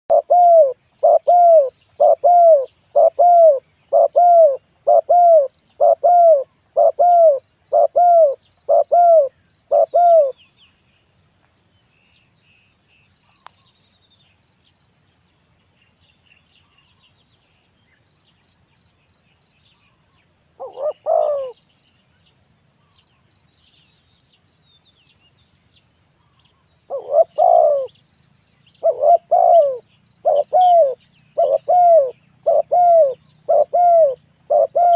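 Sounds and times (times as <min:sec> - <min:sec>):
dove cooing: 0:00.1 - 0:10.4, 0:20.6 - 0:21.6, 0:26.9 - 0:28.0, 0:28.8 - 0:34.9
small birds chirping: 0:00.1 - 0:34.9.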